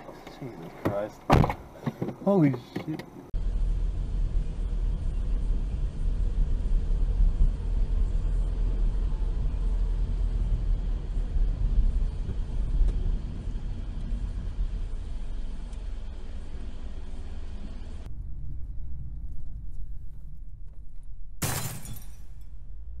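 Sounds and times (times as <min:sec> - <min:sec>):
traffic: 0:00.0 - 0:20.6
road and wind noise: 0:00.0 - 0:23.0.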